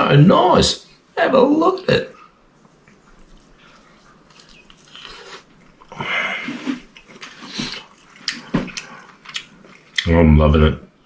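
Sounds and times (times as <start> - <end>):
person chewing crunchy food: 2.8 - 10.1.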